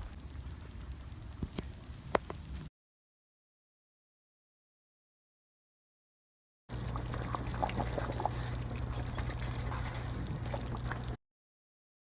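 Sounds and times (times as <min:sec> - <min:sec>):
low hum: 0:00.0 - 0:02.7, 0:06.7 - 0:11.2
liquid gurgling with pops: 0:06.7 - 0:11.2.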